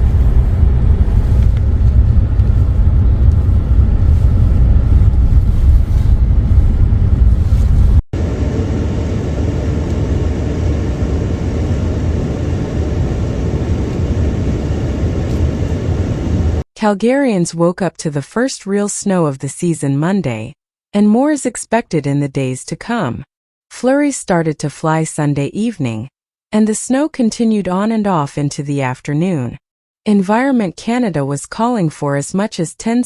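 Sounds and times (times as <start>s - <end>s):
vehicle driving road noise: 0.0s - 16.6s.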